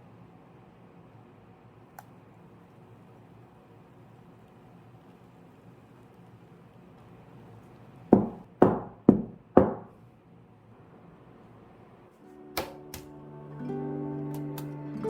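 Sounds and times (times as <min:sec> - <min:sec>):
soft background music: 0:12.2 - 0:15.0.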